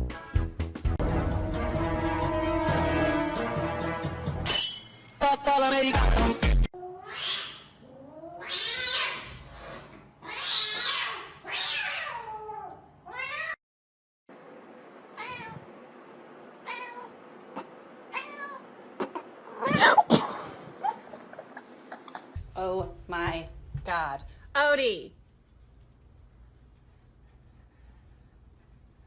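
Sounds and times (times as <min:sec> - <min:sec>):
cat meowing: 0:06.8 - 0:09.3, 0:10.2 - 0:13.6, 0:15.2 - 0:15.7, 0:16.6 - 0:19.9.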